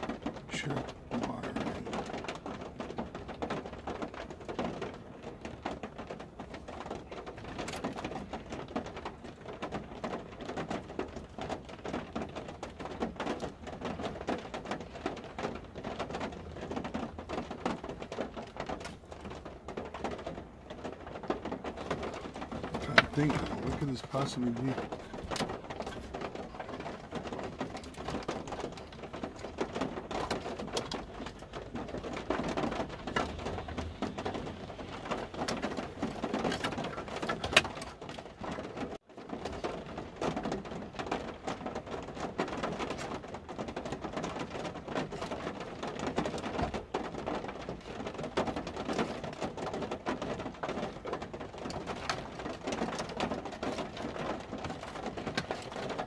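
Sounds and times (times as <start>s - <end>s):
rain pattering on truck roof: 0.0s - 56.0s.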